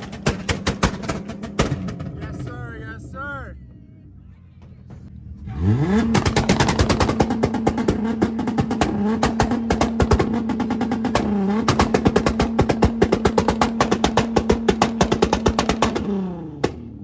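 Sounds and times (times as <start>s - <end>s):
exhaust pops and bangs: 0.0s - 3.1s, 4.6s - 17.0s
car engine on rev limiter: 4.6s - 17.0s.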